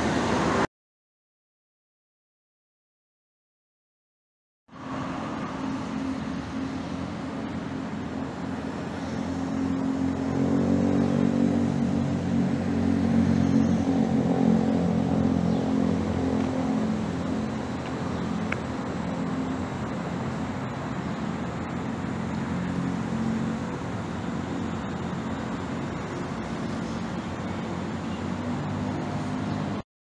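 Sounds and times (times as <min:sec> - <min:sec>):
outdoor background noise: 0:00.0 - 0:00.7, 0:04.7 - 0:29.8
vehicle engine running: 0:05.0 - 0:29.8.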